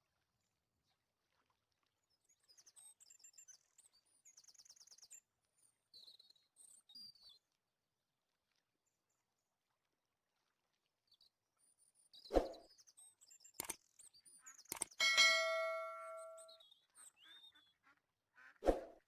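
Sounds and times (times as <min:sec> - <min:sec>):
ringing metal clang: 0:15.0 - 0:16.5.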